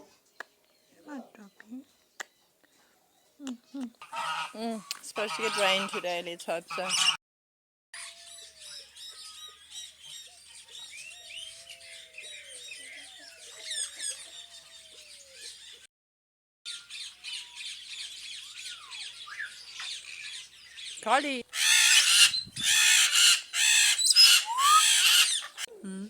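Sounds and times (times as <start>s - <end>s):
parrots chattering and squawking: 3.9s - 7.2s, 16.7s - 25.7s.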